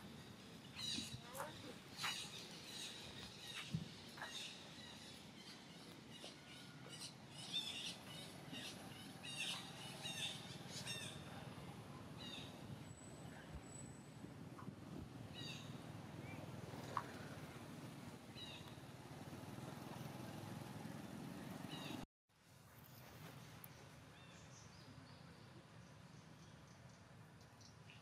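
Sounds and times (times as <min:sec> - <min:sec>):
birds chirping: 0:00.0 - 0:13.8, 0:15.3 - 0:17.7, 0:21.3 - 0:22.0.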